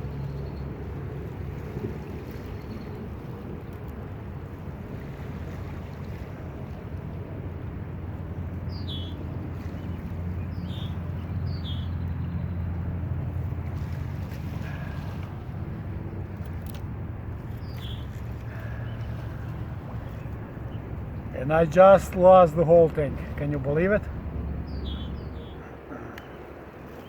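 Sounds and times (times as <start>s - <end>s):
descending bird calls: 24.6s - 26.6s.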